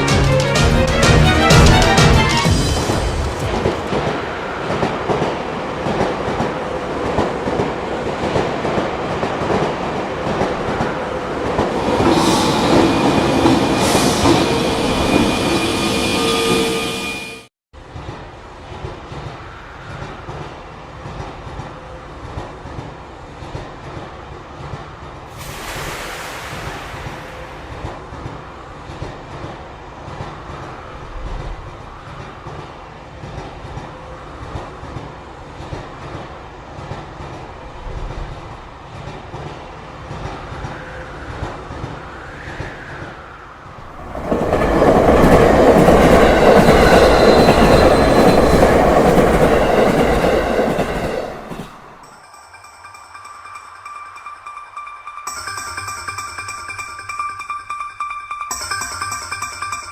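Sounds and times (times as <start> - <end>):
train rumbling on rails: 0.0 - 55.2
thin high squealing: 12.1 - 17.5
brief hiss: 25.3 - 27.9.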